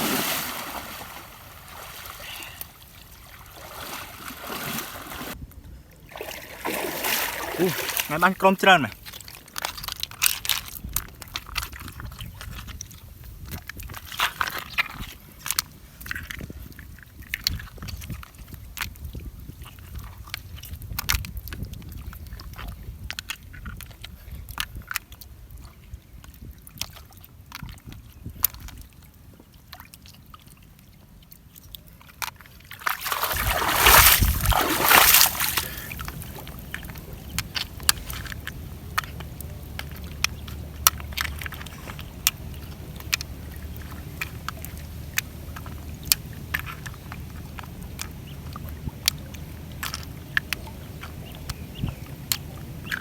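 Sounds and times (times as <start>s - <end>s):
water sloshing: 0.0s - 5.4s, 6.0s - 18.4s, 28.5s - 53.0s
small clicks and knocks: 36.0s - 51.6s.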